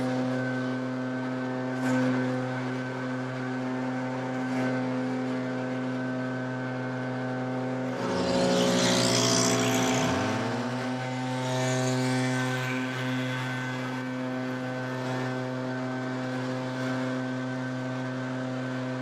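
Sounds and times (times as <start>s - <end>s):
leaf blower engine whine: 0.0s - 19.0s.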